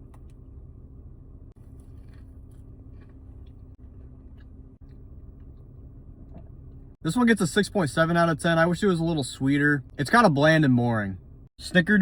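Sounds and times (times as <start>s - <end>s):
steady low hum: 0.0s - 12.0s
faint chewing of cookie: 1.6s - 5.5s.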